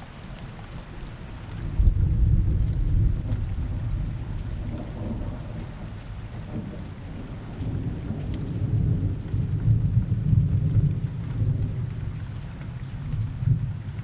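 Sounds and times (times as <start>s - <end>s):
steady rain: 0.0s - 14.0s
rolling thunder: 1.7s - 12.0s.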